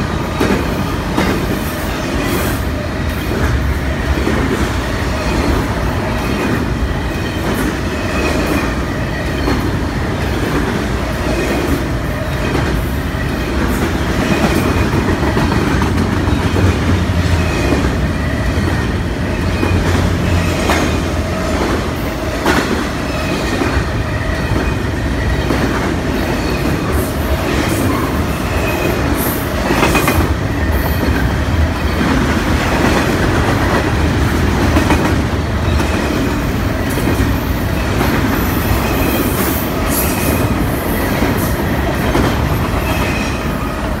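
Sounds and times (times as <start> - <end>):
freight train rumbling past: 0.0 - 44.0.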